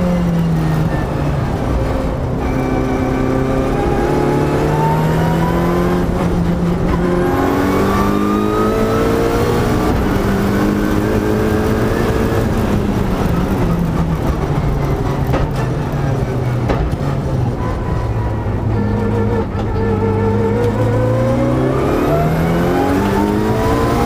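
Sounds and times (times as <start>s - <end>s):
car engine revving from inside cabin: 2.4s - 12.7s, 18.8s - 24.0s.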